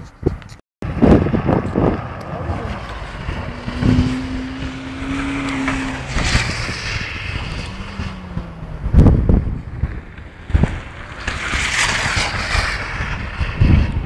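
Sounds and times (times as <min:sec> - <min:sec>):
wind on microphone: 0:00.0 - 0:14.0
distant car engine: 0:00.8 - 0:13.7.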